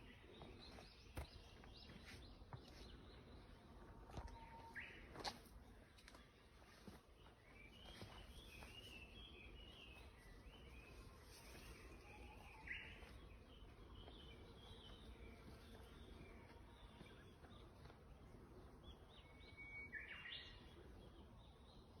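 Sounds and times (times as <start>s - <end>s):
low outdoor background hum: 0.0s - 22.0s
birds chirping and singing: 6.8s - 22.0s.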